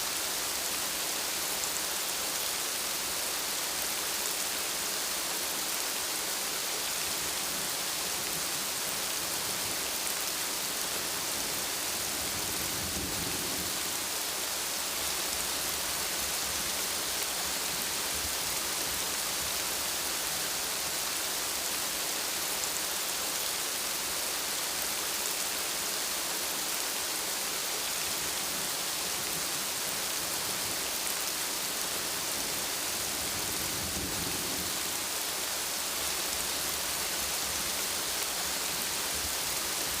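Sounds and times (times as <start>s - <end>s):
steady rainfall: 0.0s - 40.0s.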